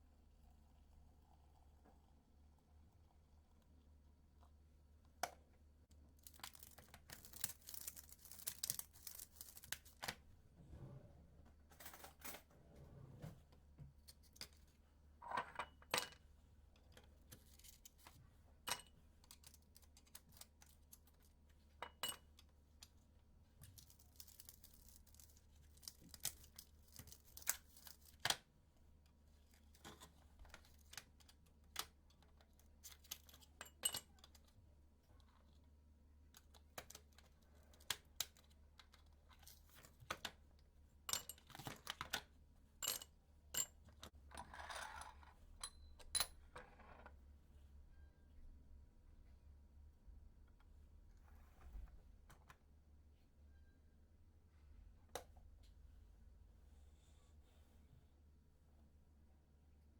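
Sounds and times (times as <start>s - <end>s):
faint low hum: 0.0s - 59.9s.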